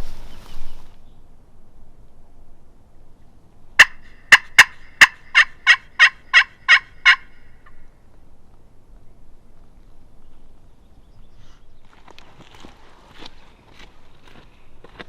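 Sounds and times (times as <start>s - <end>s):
turkey yelping: 3.8s - 7.8s.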